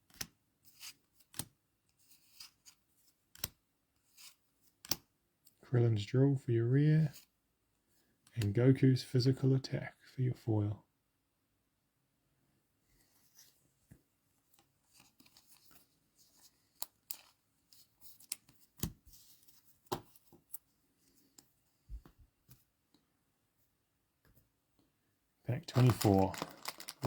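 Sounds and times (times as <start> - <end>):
packaging rustling: 25.6 - 27.0
card packaging clicks and taps: 25.7 - 27.0.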